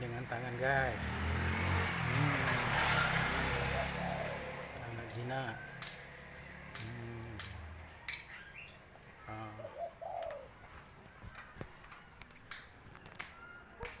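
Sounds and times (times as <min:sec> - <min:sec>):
dove cooing: 0:02.2 - 0:05.7, 0:09.2 - 0:10.9.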